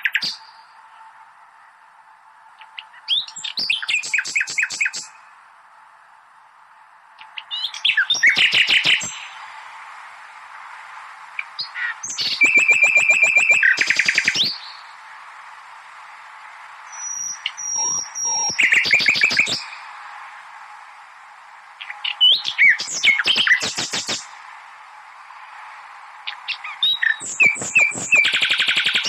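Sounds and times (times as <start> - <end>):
nightingale singing trills: 0.0 - 0.6, 2.6 - 5.2, 7.2 - 9.4, 11.4 - 15.0, 16.9 - 19.9, 21.8 - 24.4, 26.3 - 29.0
steady low hiss: 0.0 - 29.0.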